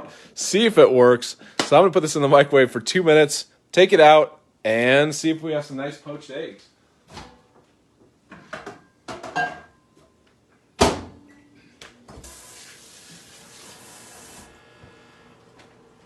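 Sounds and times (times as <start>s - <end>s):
steady hiss: 12.2s - 14.6s.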